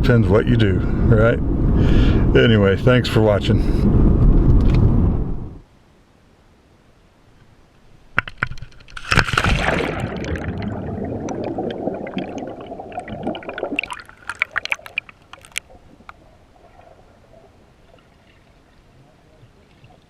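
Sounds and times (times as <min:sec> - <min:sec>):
water splashing hard: 0:09.0 - 0:17.5
churning and gurgling water: 0:09.0 - 0:20.0
small clicks and drips: 0:13.7 - 0:16.9.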